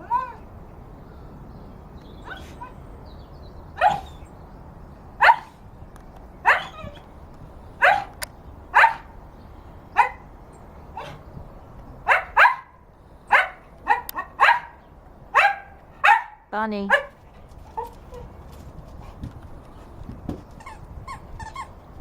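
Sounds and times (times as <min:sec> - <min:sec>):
dog barking: 0:03.8 - 0:04.2, 0:05.2 - 0:05.5, 0:06.4 - 0:06.8, 0:07.8 - 0:08.1, 0:08.8 - 0:09.1, 0:12.1 - 0:14.8, 0:15.4 - 0:17.2.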